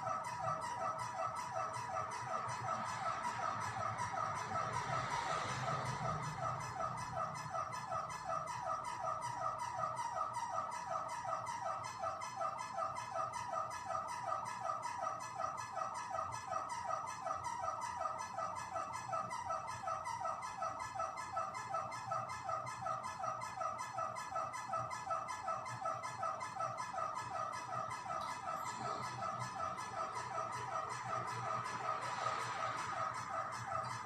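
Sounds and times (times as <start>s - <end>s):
electric fan squeaking: 21.0s - 34.0s.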